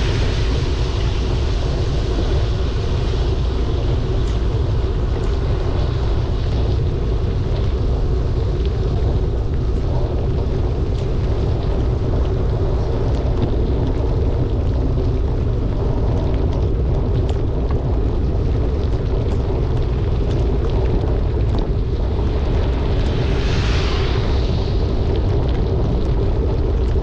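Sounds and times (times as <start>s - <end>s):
hiss of water spray: 0.0s - 4.3s, 22.2s - 25.9s
raindrops ticking on camera: 0.0s - 27.0s
wind rumble on microphone: 0.0s - 27.0s.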